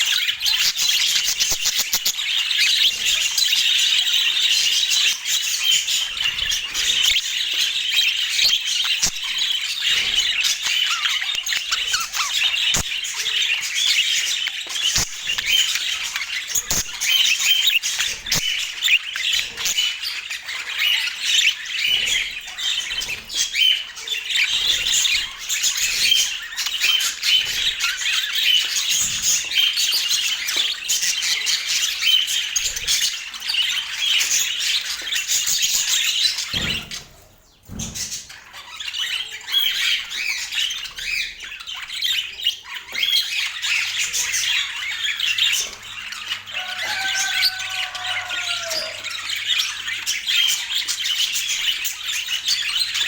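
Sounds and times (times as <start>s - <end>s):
budgerigars chirping and squawking: 0.0s - 53.0s.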